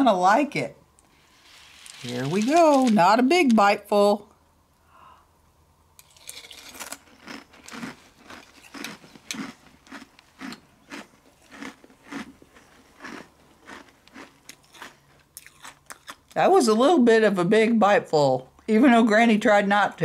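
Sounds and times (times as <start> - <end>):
person chewing crunchy cereal: 1.2 - 3.0, 6.0 - 16.4.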